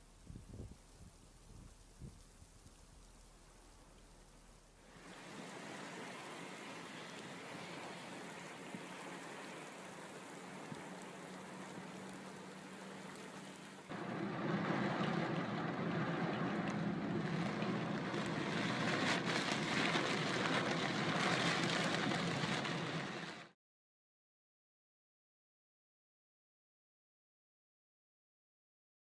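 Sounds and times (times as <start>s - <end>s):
low steady hum: 0.0s - 22.0s
heavy rain pouring: 0.0s - 23.5s.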